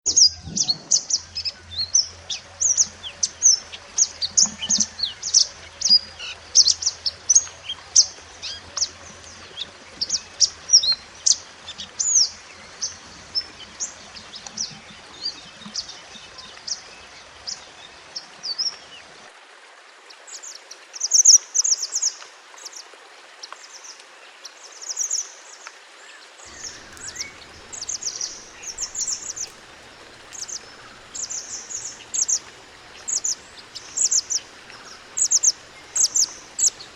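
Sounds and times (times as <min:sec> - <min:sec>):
songbird chirping and trilling: 0:26.4 - 0:36.9.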